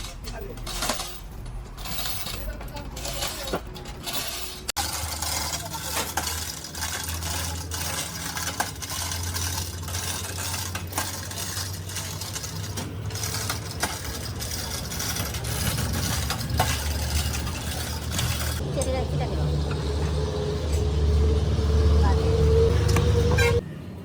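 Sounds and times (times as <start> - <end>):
low engine-like hum: 15.3 - 24.0.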